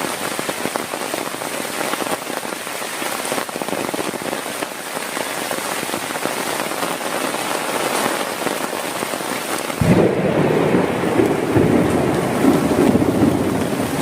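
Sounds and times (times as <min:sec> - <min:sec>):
heavy rain falling: 0:00.0 - 0:14.0
low thunder rumble: 0:09.8 - 0:14.0.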